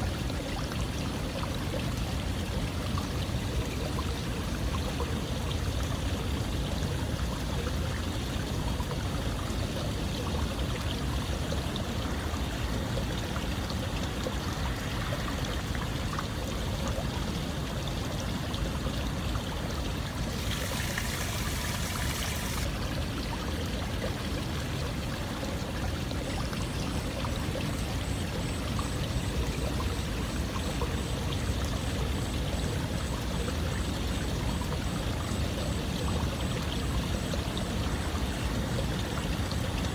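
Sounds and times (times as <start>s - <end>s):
running water rushing: 12.2s - 31.1s.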